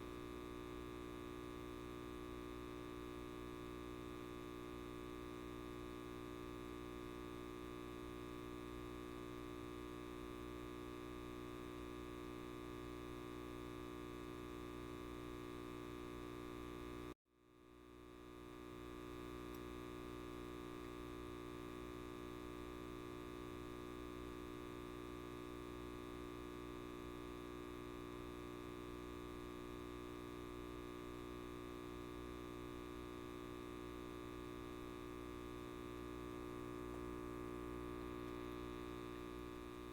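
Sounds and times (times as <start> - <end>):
light bulb electrical buzz: 0.0 - 39.9.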